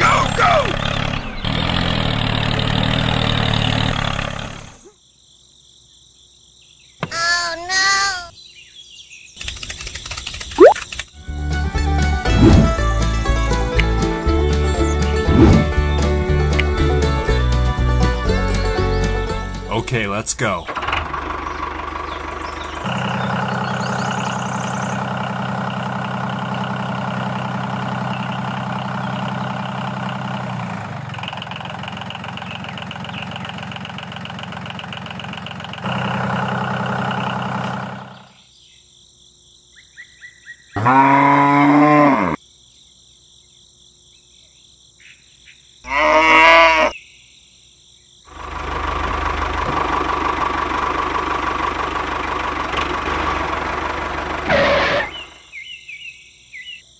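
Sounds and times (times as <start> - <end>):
cow mooing: 40.8 - 42.4, 45.9 - 47.0.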